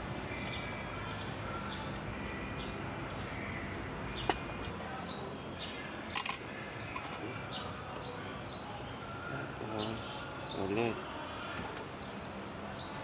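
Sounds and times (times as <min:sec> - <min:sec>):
metallic rattle: 0:06.2 - 0:06.4
metal parts clinking: 0:06.2 - 0:07.2.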